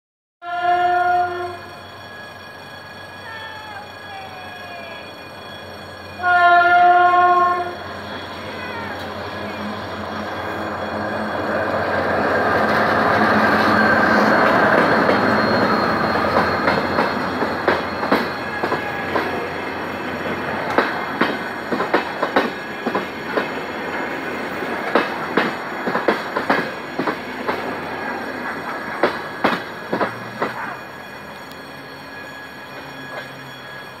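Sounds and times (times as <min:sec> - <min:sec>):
diesel locomotive engine: 0:00.4 - 0:34.0
train rumble: 0:00.8 - 0:34.0
wheels clacking over rail joints: 0:12.0 - 0:31.7.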